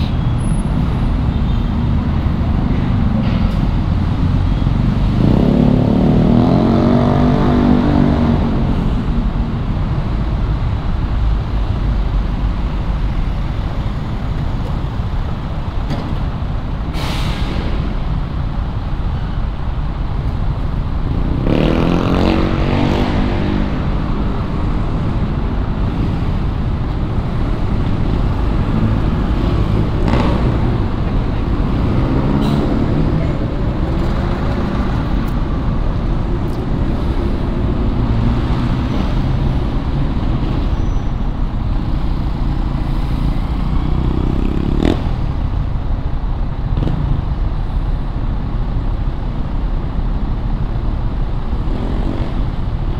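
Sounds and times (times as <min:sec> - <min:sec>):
traffic rumble: 0:00.0 - 0:52.9
vehicle passing loudly: 0:03.8 - 0:09.6, 0:21.1 - 0:40.7.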